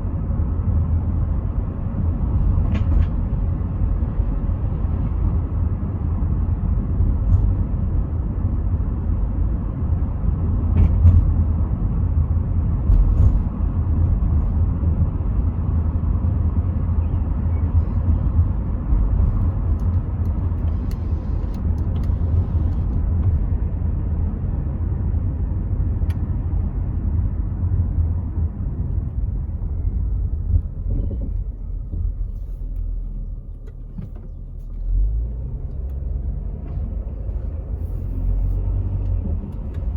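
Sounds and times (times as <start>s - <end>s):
car cabin rumble: 10.4s - 39.9s.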